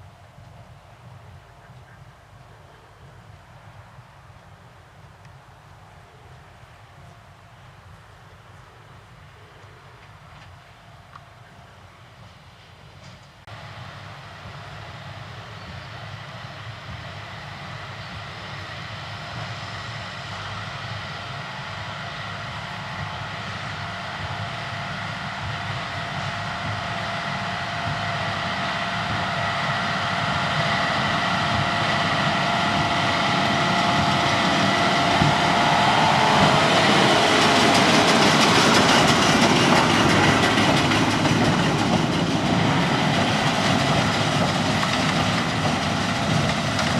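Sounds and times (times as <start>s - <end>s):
baler machinery whining: 14.8s - 46.9s
tractor engine running: 16.4s - 46.9s.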